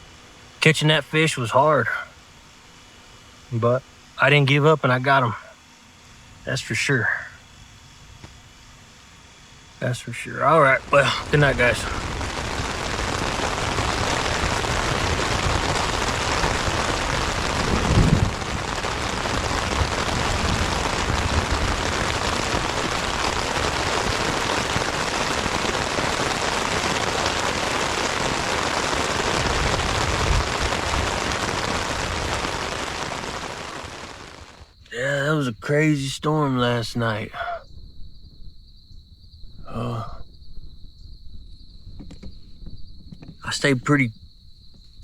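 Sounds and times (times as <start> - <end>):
heavy rain on a tent: 10.3 - 35.2, 39.7 - 40.2.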